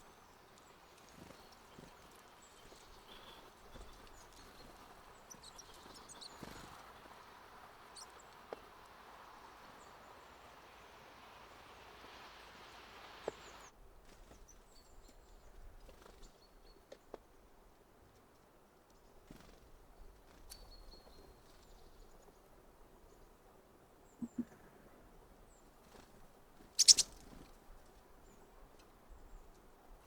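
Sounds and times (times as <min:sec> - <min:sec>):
steady hiss: 0:06.8 - 0:13.7
high bird chirps: 0:26.8 - 0:27.2.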